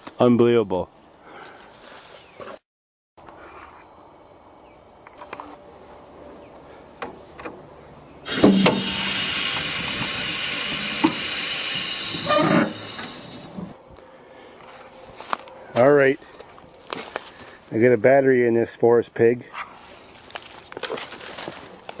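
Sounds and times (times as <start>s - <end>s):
loud steady hiss: 8.2s - 13.8s.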